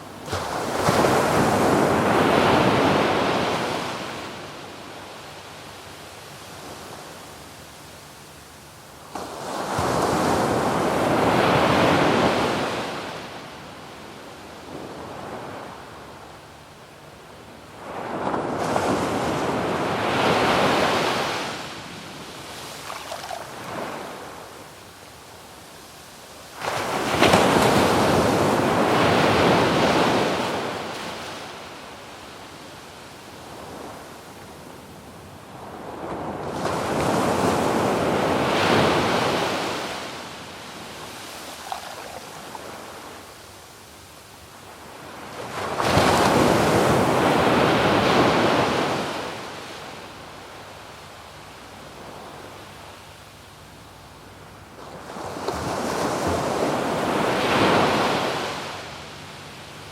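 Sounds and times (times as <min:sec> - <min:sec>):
sea waves breaking on beach: 0:00.0 - 0:04.9, 0:17.8 - 0:24.5, 0:26.5 - 0:31.8, 0:35.5 - 0:43.3, 0:44.9 - 0:50.2, 0:54.8 - 0:59.2.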